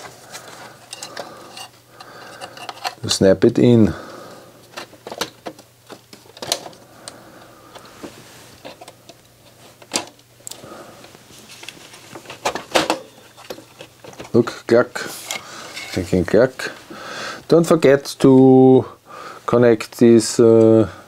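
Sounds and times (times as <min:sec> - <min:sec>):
plastic parts clicking and clacking: 0:00.9 - 0:03.0, 0:04.7 - 0:07.2.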